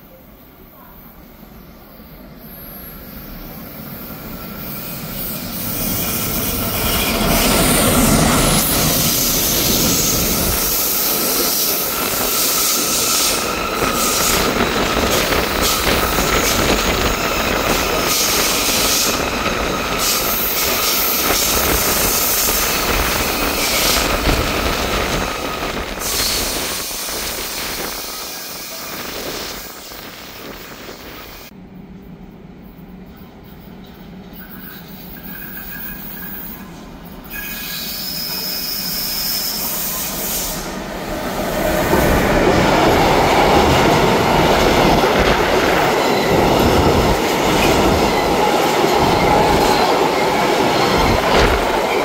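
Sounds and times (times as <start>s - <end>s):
freight train rumbling: 0.0s - 52.0s
high wheel squeal: 34.4s - 40.6s.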